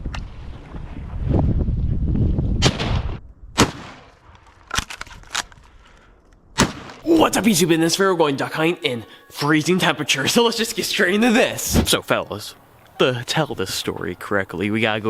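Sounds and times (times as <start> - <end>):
wind buffeting microphone: 0.0 - 3.6
shotgun blasts: 2.6 - 4.2, 6.6 - 7.0.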